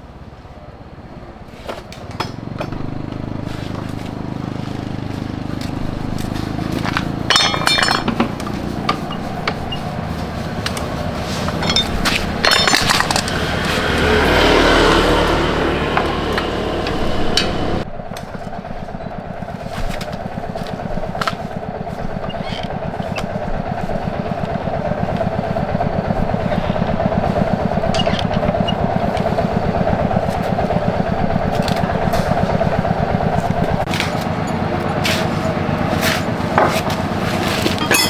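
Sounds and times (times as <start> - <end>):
small motorcycle engine running: 0.0 - 38.0
faint clinks: 6.0 - 14.7, 26.8 - 29.0, 37.8 - 38.0.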